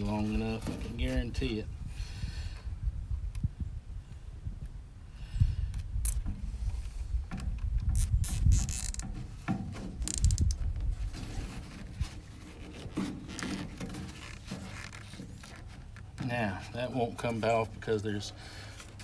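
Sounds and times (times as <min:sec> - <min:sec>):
zip tie ratcheting clicks: 0:06.0 - 0:06.2, 0:07.9 - 0:09.1, 0:10.0 - 0:10.6
plastic hose rubbing: 0:06.0 - 0:07.0, 0:07.8 - 0:16.2.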